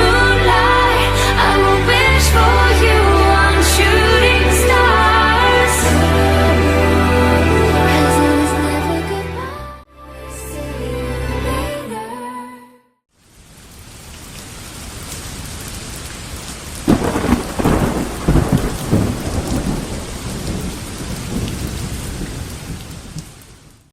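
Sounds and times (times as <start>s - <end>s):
steady rain: 13.1s - 23.9s
thunderclap rumbling: 16.8s - 23.3s.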